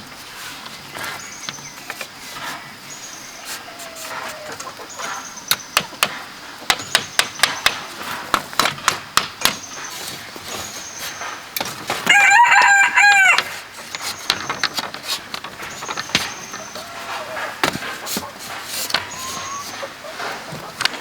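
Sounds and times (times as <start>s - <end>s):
rooster crowing: 12.1s - 13.7s, 16.6s - 17.7s
faint high chirps: 19.0s - 20.0s.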